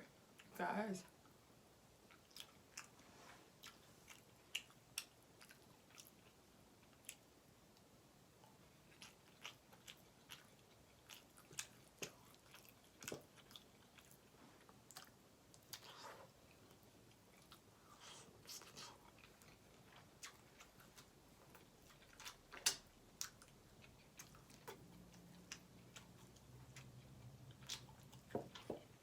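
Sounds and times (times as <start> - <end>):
chewing soft food: 0.2 - 29.0.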